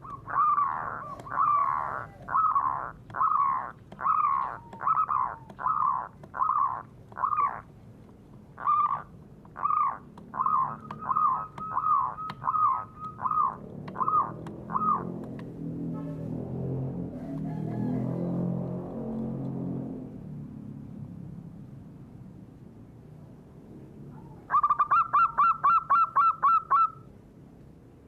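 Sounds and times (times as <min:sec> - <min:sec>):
bird calling harsh notes: 0:00.0 - 0:07.7, 0:08.6 - 0:15.2, 0:24.3 - 0:27.1.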